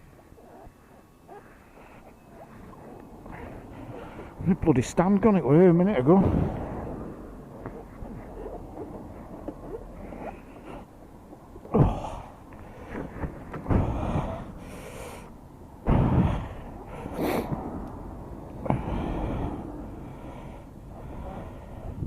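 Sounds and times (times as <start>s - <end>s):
microphone wind rumbles: 6.0s - 9.2s, 15.8s - 20.0s.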